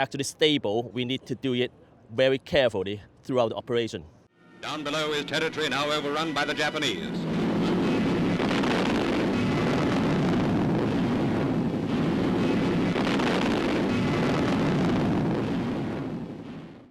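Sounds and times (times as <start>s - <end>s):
aircraft engines droning: 4.3s - 14.8s.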